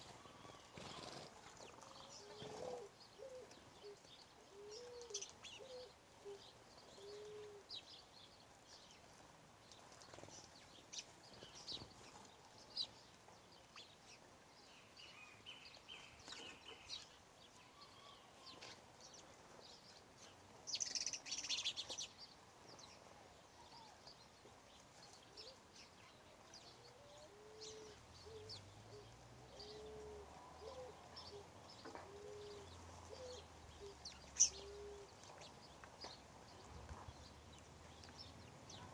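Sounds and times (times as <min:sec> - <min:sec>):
small birds chirping: 0:00.0 - 0:38.9
dove cooing: 0:00.1 - 0:07.7, 0:26.9 - 0:35.1.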